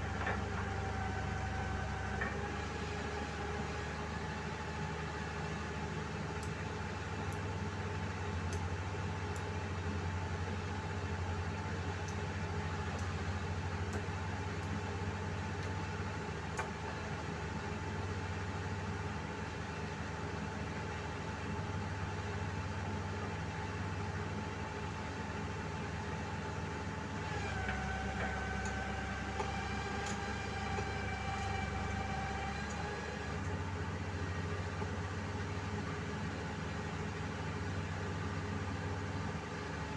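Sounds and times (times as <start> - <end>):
diesel engine running: 0.0 - 6.0, 26.0 - 39.9
whining tone: 27.3 - 33.6.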